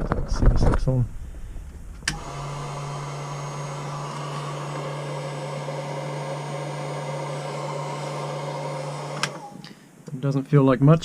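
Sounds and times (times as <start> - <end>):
switch click: 2.0 - 2.3
hairdryer humming and blowing air: 2.1 - 9.6.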